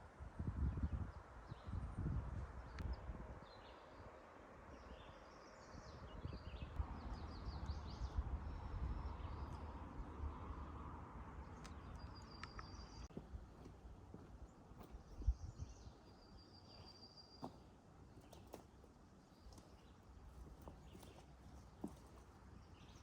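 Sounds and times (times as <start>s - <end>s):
small birds chirping: 4.7s - 10.7s, 11.3s - 23.0s.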